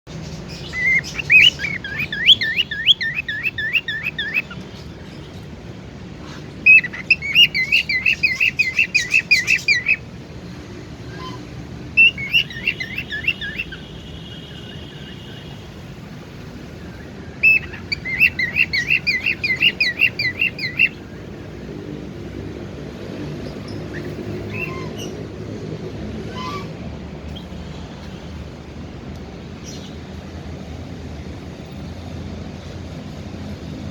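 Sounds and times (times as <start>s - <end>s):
cockatiel chirping: 0.5s - 4.6s, 6.7s - 10.0s, 12.0s - 13.8s, 17.4s - 21.0s.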